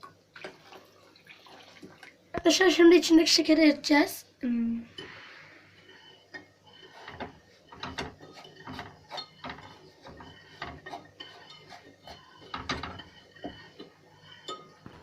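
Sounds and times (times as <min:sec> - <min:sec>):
spoon scraping cooking pot: 0:04.9 - 0:15.0.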